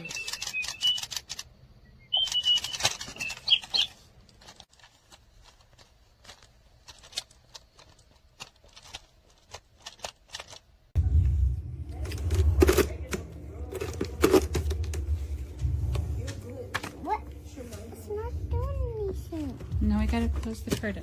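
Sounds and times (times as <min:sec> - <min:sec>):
toy parrot chirping: 0:00.0 - 0:04.1.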